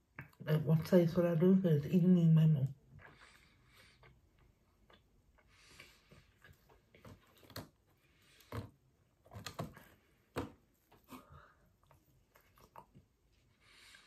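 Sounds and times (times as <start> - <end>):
chewing bread: 2.8 - 10.1, 10.9 - 13.4
mouth clicks and smacks: 12.3 - 13.1.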